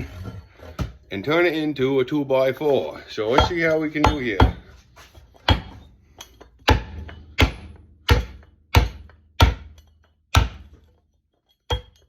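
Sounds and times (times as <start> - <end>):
pickaxe striking wooden board: 5.4 - 5.9, 6.6 - 10.8.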